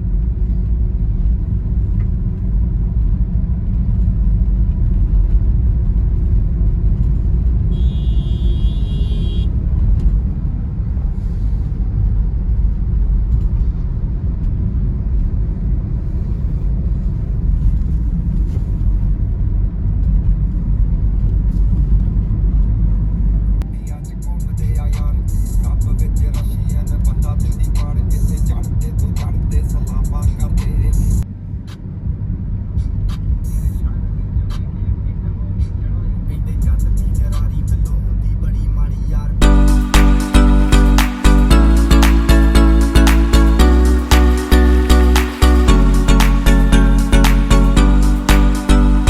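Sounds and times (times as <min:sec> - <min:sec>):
car engine and road rumble: 0:00.0 - 0:39.4
high-pitched tone: 0:39.4 - 0:49.0.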